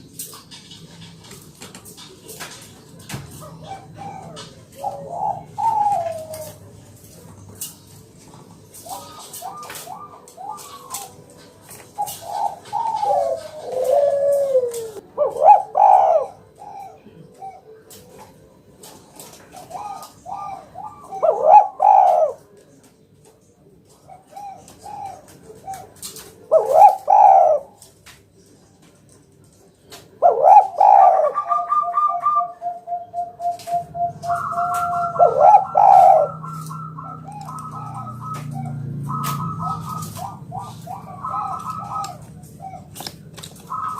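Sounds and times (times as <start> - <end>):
dove cooing: 0.0 - 22.8, 23.8 - 27.9, 29.9 - 43.9
higher-pitched bird calling: 30.2 - 43.9.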